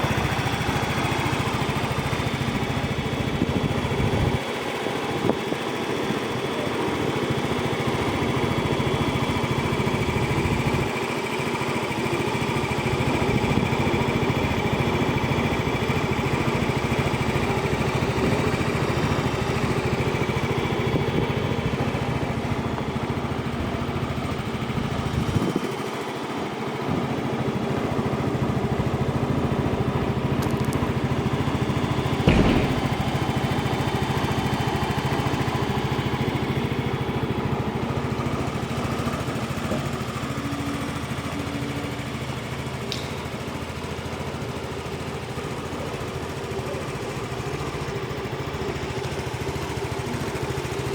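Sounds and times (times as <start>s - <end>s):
scooter engine idling: 0.0s - 50.9s
short knock: 32.2s - 33.3s.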